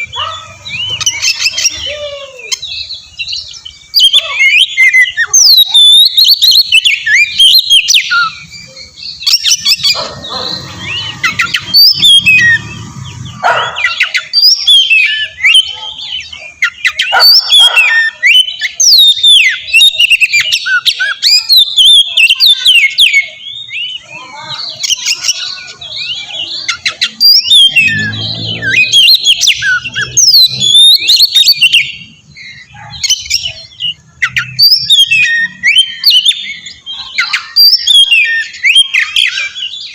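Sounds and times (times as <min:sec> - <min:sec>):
bird singing fast whistles: 0:09.2 - 0:15.9.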